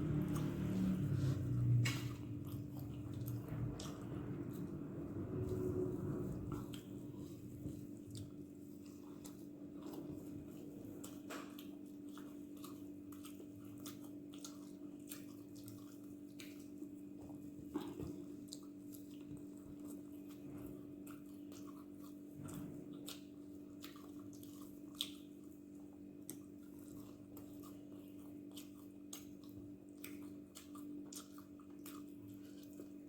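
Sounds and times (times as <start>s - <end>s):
low hum: 0.0s - 13.4s
chewing mouth sounds: 0.0s - 33.0s.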